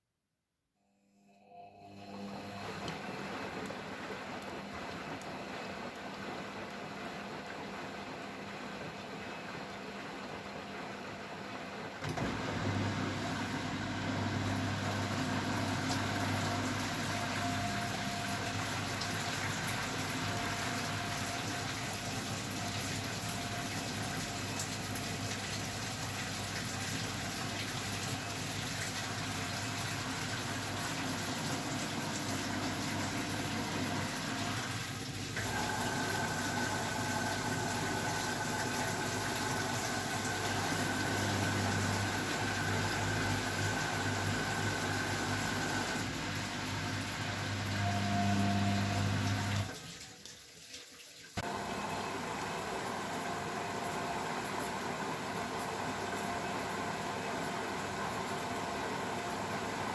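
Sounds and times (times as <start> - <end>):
washing machine running: 1.7 - 50.2, 51.3 - 59.9.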